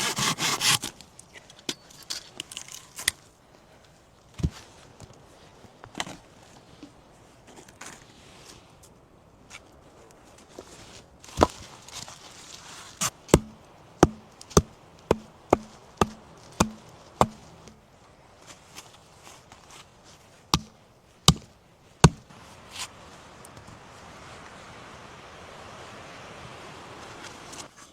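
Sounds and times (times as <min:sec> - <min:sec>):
tool chopping wood: 0:13.0 - 0:17.8, 0:20.5 - 0:22.3.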